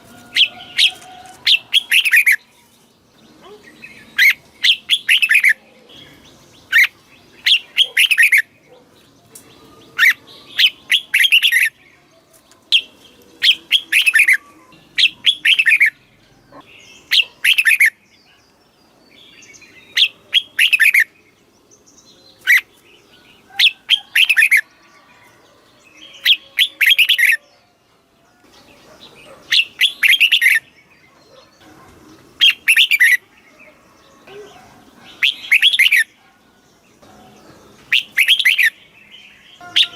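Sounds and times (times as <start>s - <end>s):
bulbul singing: 0.0s - 24.8s, 25.9s - 27.6s, 28.4s - 39.9s.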